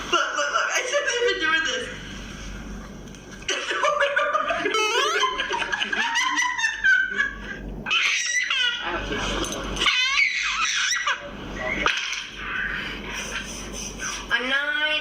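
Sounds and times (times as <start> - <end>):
high-pitched giggling: 3.6 - 7.2.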